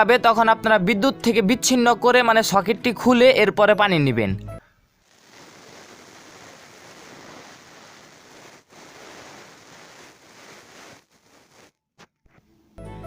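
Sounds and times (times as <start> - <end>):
water fizzing and bubbling: 5.0 - 11.7.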